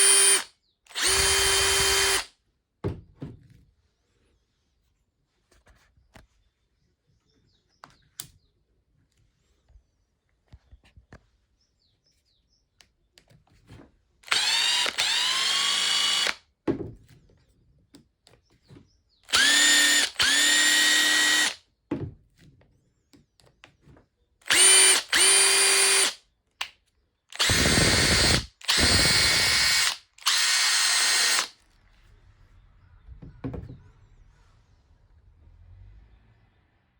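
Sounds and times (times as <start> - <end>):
impact driver motor whining: 0.0 - 2.3, 14.2 - 16.4, 19.3 - 21.6, 24.5 - 26.2, 27.3 - 31.6.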